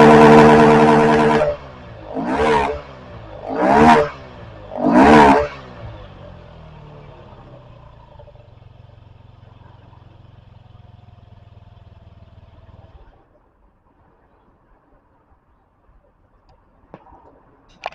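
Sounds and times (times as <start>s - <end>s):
scooter engine idling: 0.0s - 13.3s.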